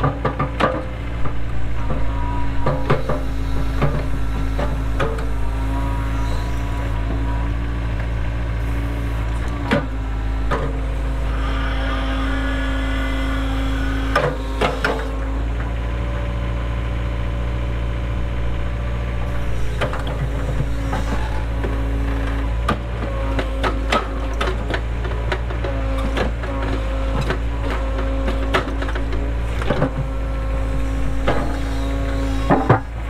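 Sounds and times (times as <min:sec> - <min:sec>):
sharp knocks and clanks: 0:00.0 - 0:05.3, 0:32.4 - 0:33.0
excavator diesel engine running: 0:00.0 - 0:33.0.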